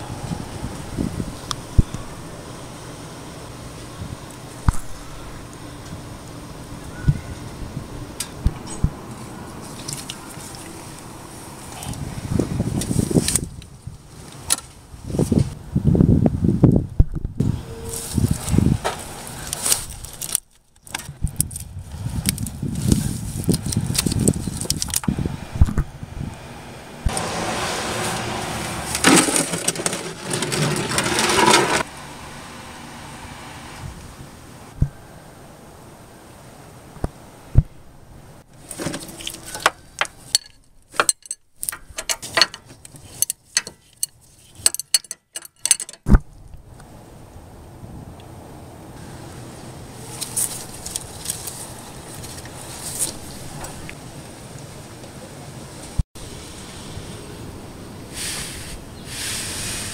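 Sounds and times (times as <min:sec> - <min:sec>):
metallic clinking and knocking: 0:39.1 - 0:46.1.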